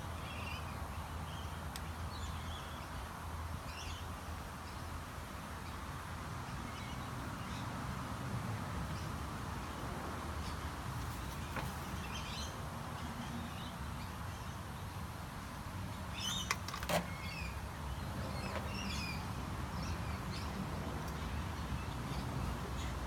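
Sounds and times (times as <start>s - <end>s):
birds chirping: 16.1s - 23.0s.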